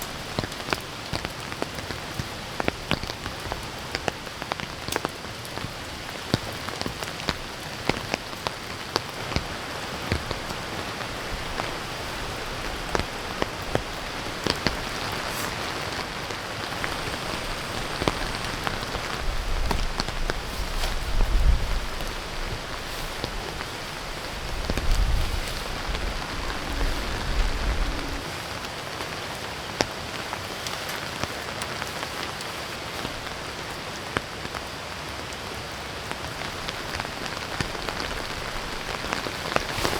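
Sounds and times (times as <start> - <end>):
heavy rain falling: 0.0 - 39.9
wind buffeting microphone: 9.2 - 28.7.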